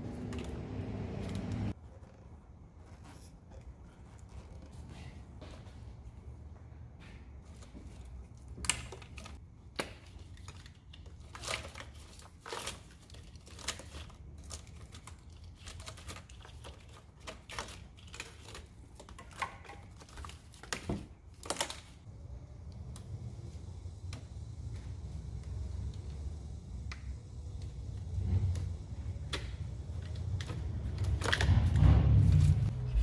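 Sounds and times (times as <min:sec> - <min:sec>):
steady low hum: 0:22.0 - 0:33.0.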